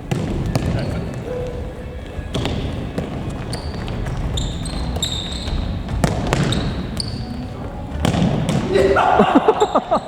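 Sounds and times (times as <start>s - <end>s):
sneaker squeaks on court: 0.1s - 9.0s
ball thudding on gym floor: 2.3s - 7.2s, 7.9s - 9.0s.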